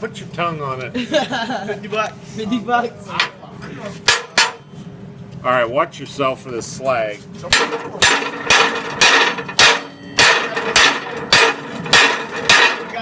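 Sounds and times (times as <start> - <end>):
hammer striking steel: 4.0 - 4.7, 7.5 - 13.0.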